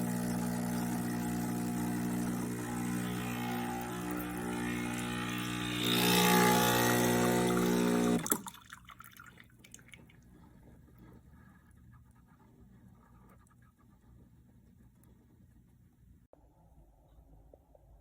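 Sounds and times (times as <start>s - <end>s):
espresso machine pump buzzing: 0.0s - 8.3s
faint water drips: 8.2s - 10.5s.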